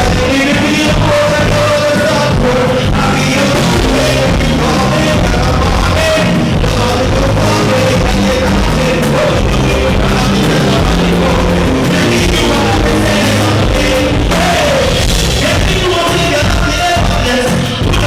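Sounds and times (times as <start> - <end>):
live band playing: 0.0 - 18.0
vocalist singing: 0.0 - 18.0.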